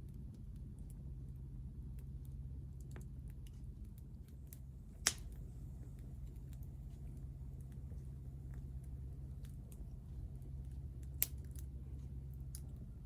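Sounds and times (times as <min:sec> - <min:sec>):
wood fire crackling: 0:04.2 - 0:11.9.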